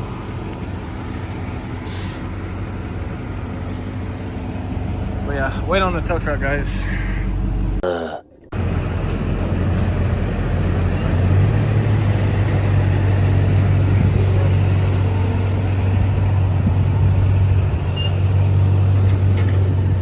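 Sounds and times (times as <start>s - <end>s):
vehicle engine idling: 0.0s - 7.8s, 8.5s - 20.0s.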